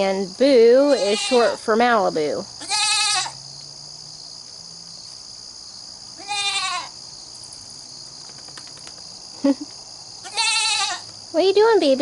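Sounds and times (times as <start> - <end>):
young goat bleating: 0.8 - 1.6, 2.6 - 3.4, 6.2 - 7.0, 10.2 - 11.1.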